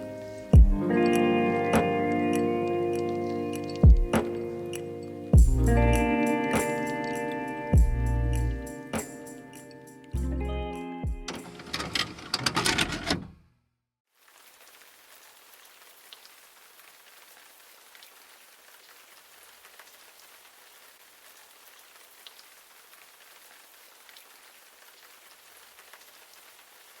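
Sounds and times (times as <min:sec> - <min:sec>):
faint rain hiss: 0:00.0 - 0:10.7, 0:14.1 - 0:27.0
light raindrop ticks: 0:00.4 - 0:07.4, 0:21.2 - 0:26.6.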